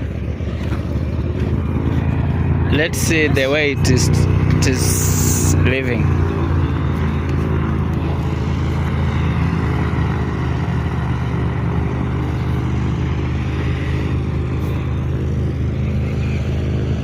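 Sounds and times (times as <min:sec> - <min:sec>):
airliner engine humming: 0:00.0 - 0:17.0.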